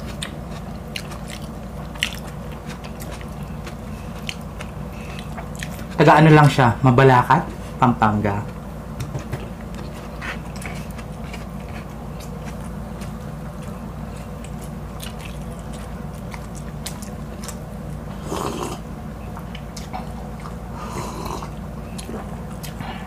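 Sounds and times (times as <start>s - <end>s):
wet chewing mouth clicks: 0.0s - 6.0s, 9.6s - 17.7s.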